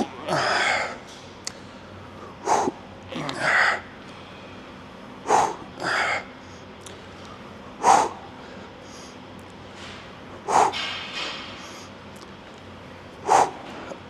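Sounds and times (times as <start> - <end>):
man breathing forcefully: 2.4 - 2.8, 5.3 - 6.2, 7.8 - 9.2, 10.4 - 10.9, 13.2 - 13.8.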